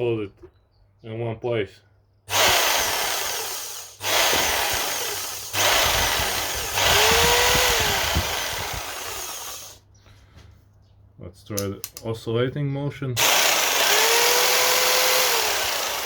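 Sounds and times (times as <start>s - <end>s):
jigsaw running: 2.3s - 9.8s, 13.2s - 16.0s.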